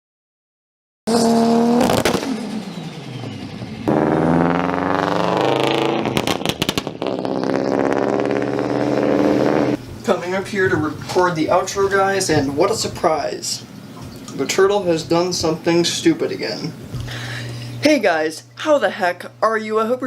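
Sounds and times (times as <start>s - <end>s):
car engines revving: 1.1s - 9.8s
rapid sharp bangs: 6.0s - 8.3s.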